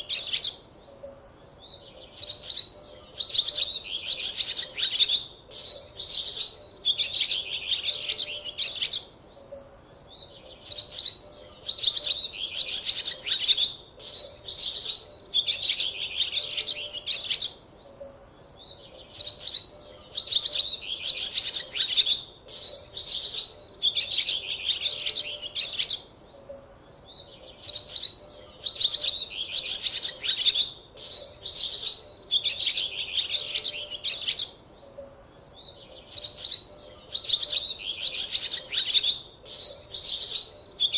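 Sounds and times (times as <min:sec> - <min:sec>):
small birds chirping and twittering: 0:00.0 - 0:40.9.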